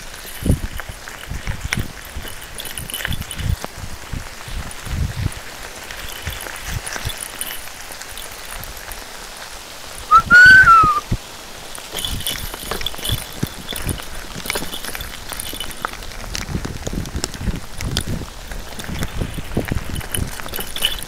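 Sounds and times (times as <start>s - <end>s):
rain falling on dirt and brush: 0.0s - 21.0s
whistle-like note: 10.1s - 11.0s.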